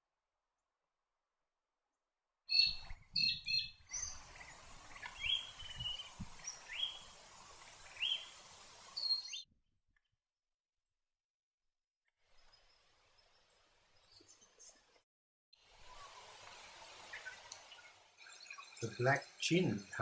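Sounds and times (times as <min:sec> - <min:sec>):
bird calling: 0:02.5 - 0:07.2, 0:07.8 - 0:09.4.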